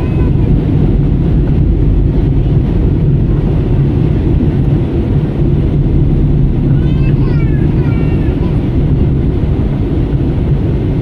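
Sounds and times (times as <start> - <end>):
jet airliner cabin rumble: 0.0 - 11.0.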